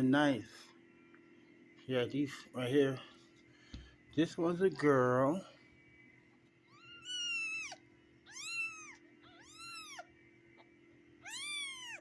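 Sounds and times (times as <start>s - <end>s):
kitten mewing: 6.7s - 10.1s, 11.2s - 12.0s.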